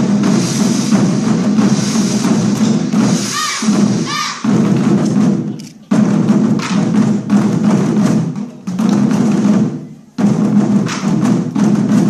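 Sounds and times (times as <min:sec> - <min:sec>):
war drums played rapidly: 0:00.0 - 0:12.0.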